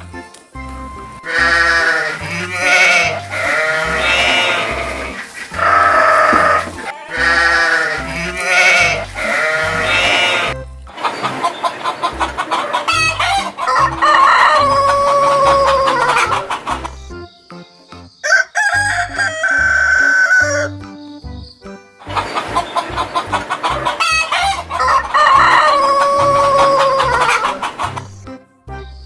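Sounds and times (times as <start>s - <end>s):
music with steady beat: 0.0s - 11.4s
goat bleating: 1.3s - 10.6s
rooster crowing: 1.3s - 10.6s, 12.0s - 16.7s, 18.2s - 20.8s, 23.7s - 27.8s
chicken clucking: 1.3s - 17.1s, 22.0s - 28.3s.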